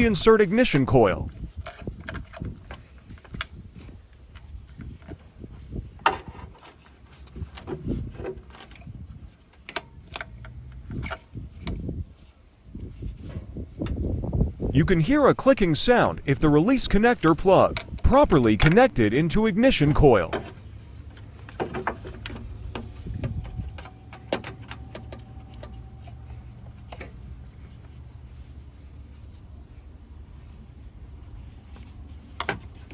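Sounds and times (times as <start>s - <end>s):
steady low hum: 8.8s - 32.9s
plastic clicks and rubbing: 19.8s - 29.5s.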